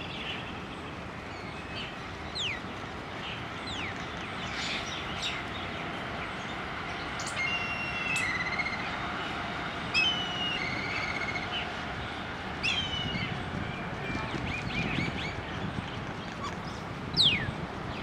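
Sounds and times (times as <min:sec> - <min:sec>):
bird call with harsh trill: 0:17.2 - 0:17.5.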